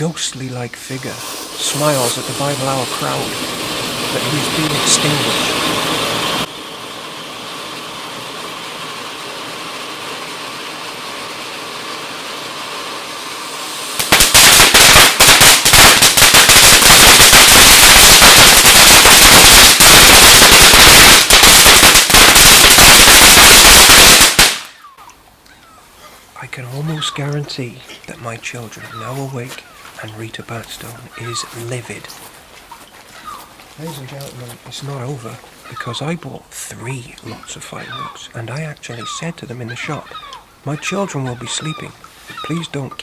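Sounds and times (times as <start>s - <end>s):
firework crackling bangs: 0.0s - 24.8s
firework hissing: 0.0s - 24.8s.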